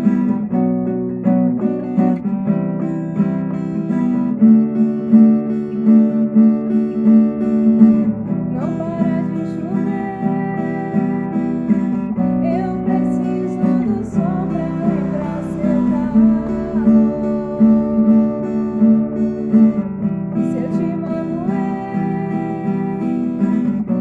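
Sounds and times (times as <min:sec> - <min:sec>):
acoustic guitar strumming: 0:00.0 - 0:24.0
bending melody line: 0:07.8 - 0:24.0.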